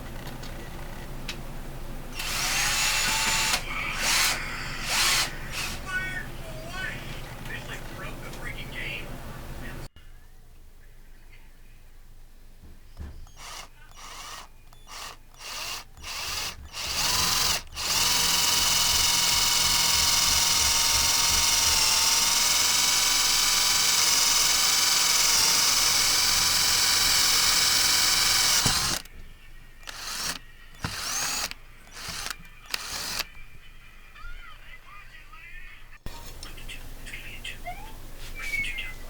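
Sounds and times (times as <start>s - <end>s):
cordless drill motor whining: 2.2s - 5.8s, 13.2s - 29.1s, 29.8s - 33.4s.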